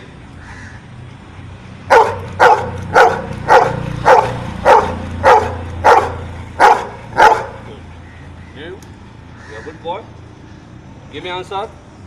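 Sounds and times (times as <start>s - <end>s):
dog barking: 1.9s - 7.7s.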